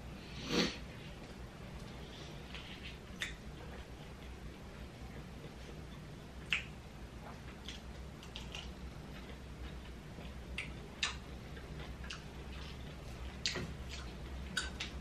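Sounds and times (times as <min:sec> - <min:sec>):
faint low hum: 0:00.0 - 0:15.0
wet chewing and smacking: 0:06.4 - 0:15.0.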